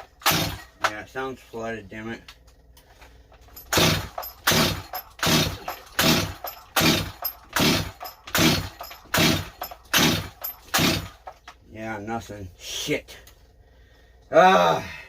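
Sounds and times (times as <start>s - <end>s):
engine cranking: 3.4s - 11.5s
chainsaw rope pulls: 3.7s - 11.3s.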